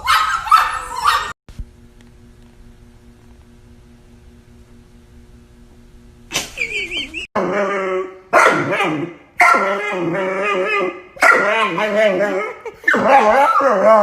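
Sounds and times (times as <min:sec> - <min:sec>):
faint hum: 0:00.1 - 0:14.0
dog howling with wavering pitch: 0:07.4 - 0:14.0.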